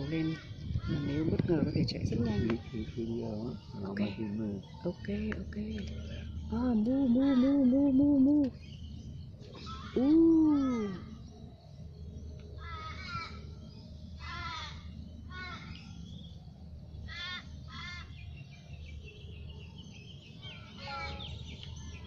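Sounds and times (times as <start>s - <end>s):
bird drawn-out call: 17.0s - 18.3s.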